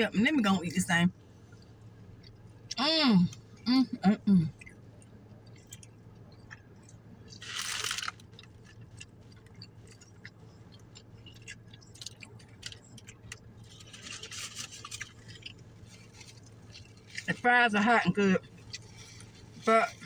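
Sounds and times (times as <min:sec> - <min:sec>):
low hum: 0:00.0 - 0:20.0
person chewing: 0:04.5 - 0:17.4, 0:18.4 - 0:20.0.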